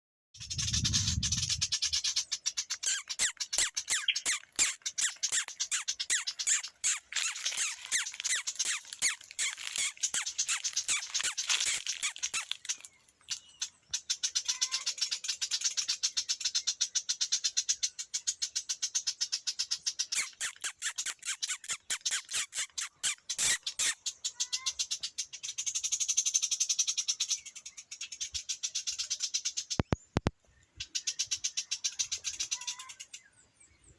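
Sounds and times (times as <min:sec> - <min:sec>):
bird rattling clicking calls: 0:02.8 - 0:13.6, 0:20.1 - 0:24.0
high hiss: 0:02.9 - 0:12.5.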